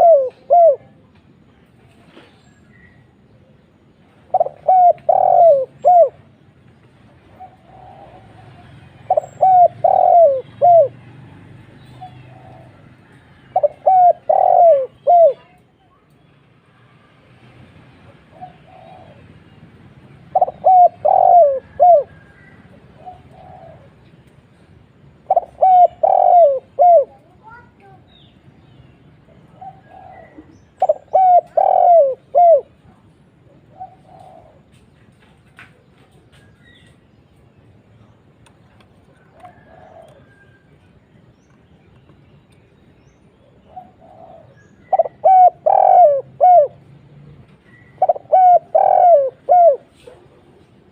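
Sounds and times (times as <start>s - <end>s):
dove cooing: 0.0s - 1.0s, 4.2s - 6.4s, 7.2s - 11.1s, 11.8s - 15.6s, 18.3s - 19.4s, 20.1s - 24.1s, 25.1s - 27.7s, 29.5s - 34.8s, 39.1s - 40.7s, 43.5s - 50.9s.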